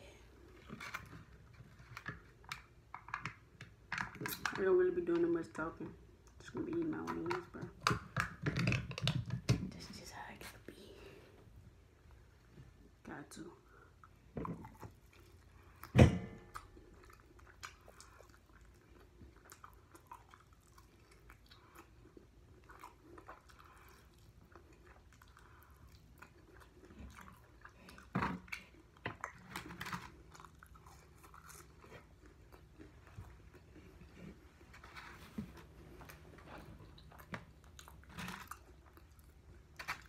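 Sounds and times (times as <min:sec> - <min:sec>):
chewing and biting chicken wings: 0:14.6 - 0:34.4.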